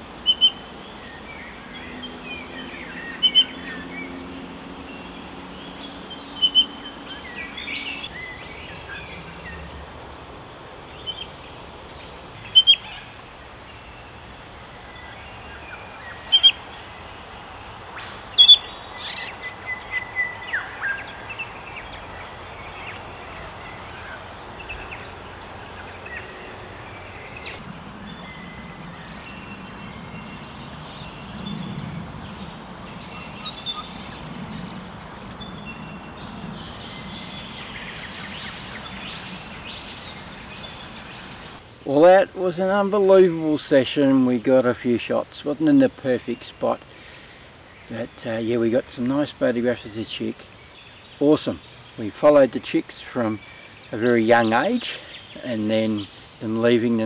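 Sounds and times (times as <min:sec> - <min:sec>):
soft bird chirps: 0:00.0 - 0:10.0, 0:10.9 - 0:42.0
bird chicks sharp short calls: 0:17.9 - 0:21.3, 0:29.6 - 0:36.5.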